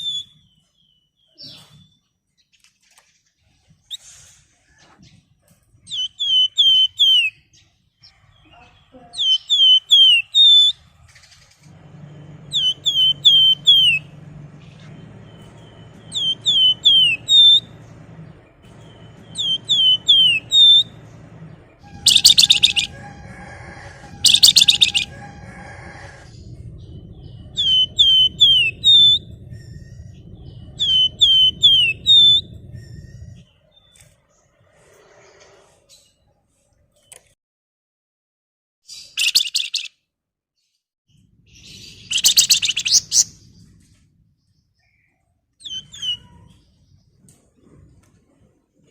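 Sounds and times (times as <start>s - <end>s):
harsh buzzy bird trills: 0.0s - 0.6s, 5.9s - 7.4s, 9.0s - 33.6s, 41.6s - 43.6s, 45.6s - 46.8s
songbird whistled notes: 0.0s - 1.9s, 5.9s - 7.4s, 9.2s - 10.8s, 11.8s - 33.5s, 41.7s - 43.4s, 45.6s - 46.5s
faint low hum: 10.7s - 34.1s.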